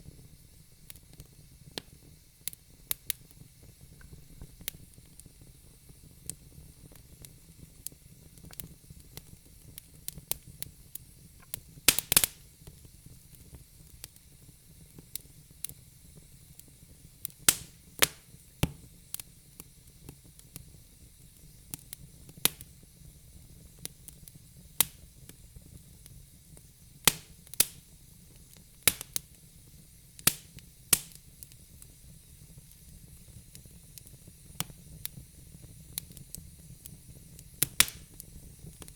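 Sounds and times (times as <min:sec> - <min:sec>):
faint steady hiss: 0:00.0 - 0:38.9
wood fire crackling and popping: 0:00.0 - 0:38.9.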